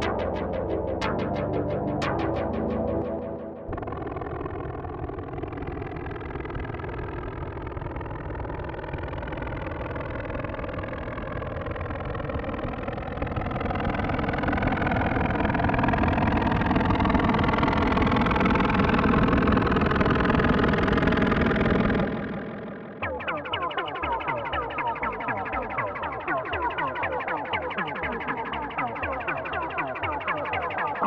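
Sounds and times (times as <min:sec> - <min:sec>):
synthesizer drone: 0:00.0 - 0:05.7, 0:15.0 - 0:31.0.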